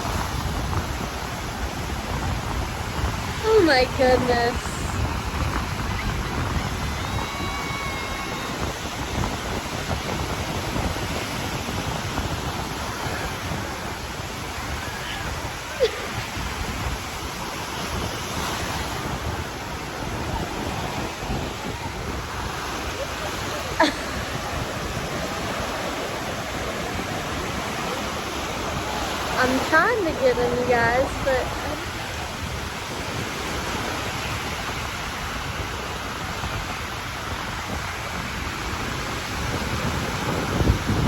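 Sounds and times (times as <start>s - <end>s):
ocean surf breaking: 0.0s - 41.0s
wind buffeting microphone: 0.0s - 41.0s.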